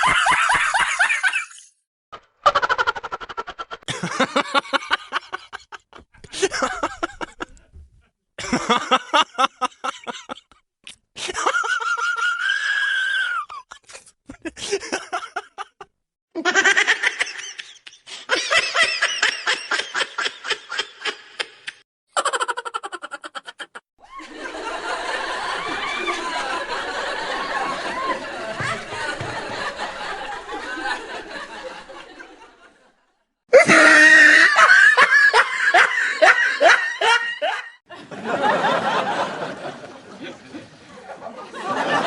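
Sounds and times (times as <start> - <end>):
high cartoonish voice laughing: 2.4 - 4.9, 16.4 - 24.2, 33.6 - 37.7.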